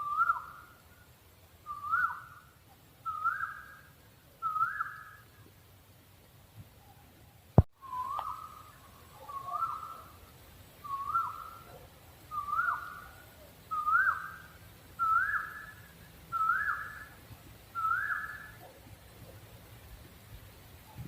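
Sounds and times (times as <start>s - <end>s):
owl whistled calls: 0.0s - 0.7s, 1.7s - 5.3s, 7.8s - 10.2s, 10.8s - 17.2s, 17.8s - 18.6s.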